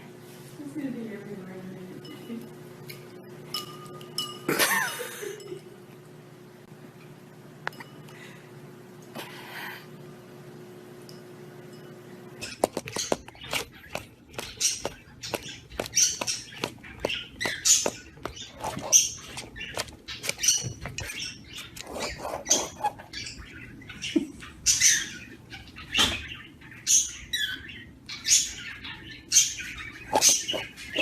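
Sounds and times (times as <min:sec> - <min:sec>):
parrot chirping and squeaking: 0:12.4 - 0:31.0.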